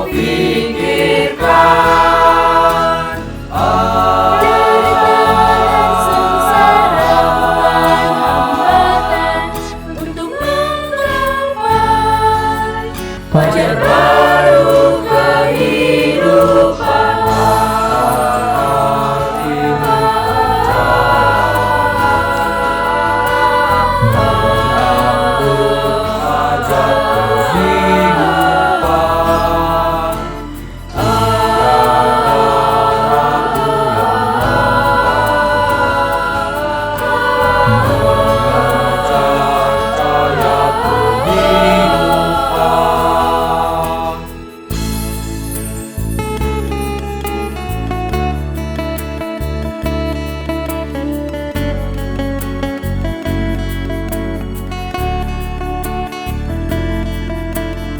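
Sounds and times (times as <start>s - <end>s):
choir singing in parts: 0.0s - 46.0s
low sustained accompaniment: 0.0s - 57.8s.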